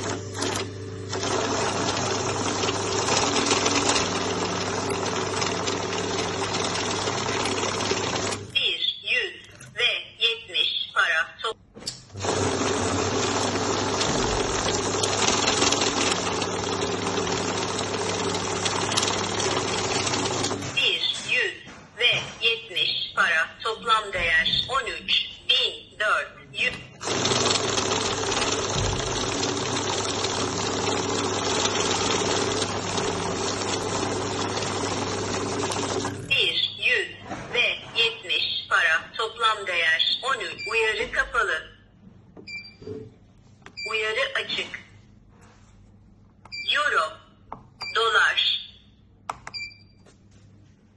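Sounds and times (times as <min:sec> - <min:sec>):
banknote counting machine rattling: 0:00.0 - 0:08.5, 0:12.2 - 0:20.7, 0:27.0 - 0:36.3.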